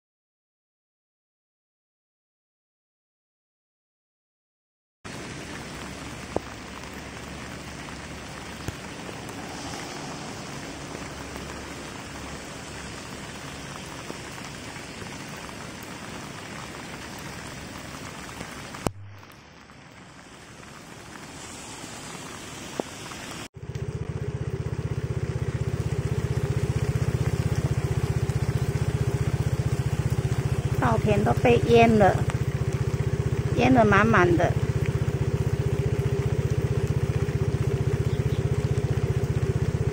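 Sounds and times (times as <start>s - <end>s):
low hum: 5.1s - 19.8s, 23.6s - 39.9s
heavy rain hitting water: 5.1s - 39.9s.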